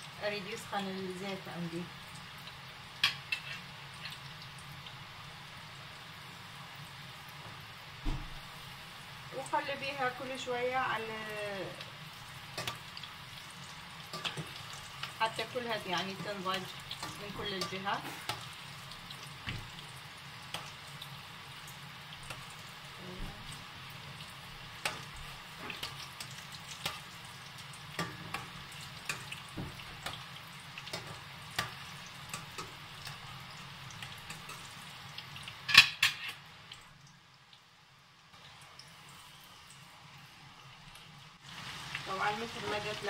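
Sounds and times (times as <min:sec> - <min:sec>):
food sizzling in hot oil: 0:00.0 - 0:43.0.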